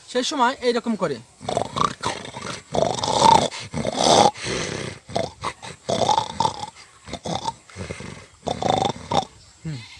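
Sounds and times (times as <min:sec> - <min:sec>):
man imitating lion roars: 0:01.4 - 0:09.3.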